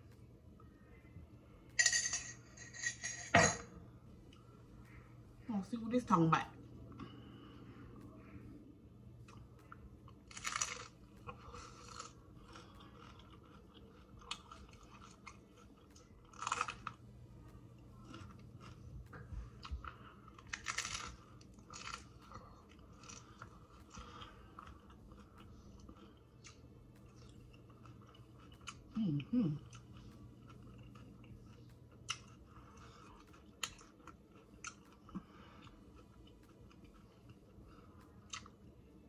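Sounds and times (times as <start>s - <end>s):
crunchy taco bites: 9.2s - 28.9s, 29.6s - 38.7s
chewing and mouth clicks: 9.2s - 29.0s, 29.6s - 38.8s.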